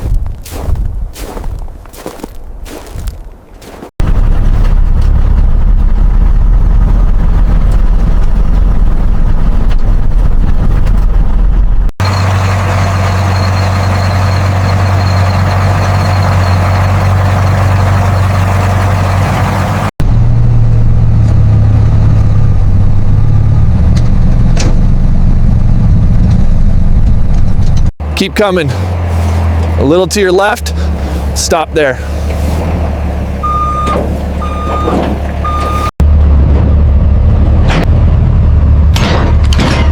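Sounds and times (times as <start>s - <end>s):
deep steady hum: 4.0s - 34.8s
loud vehicle engine running: 4.0s - 39.9s.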